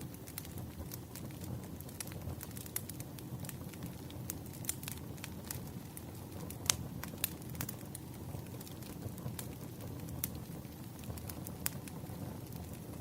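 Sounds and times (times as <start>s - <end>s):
fire crackling and popping: 0.0s - 13.0s
low fire rumble: 0.0s - 13.0s.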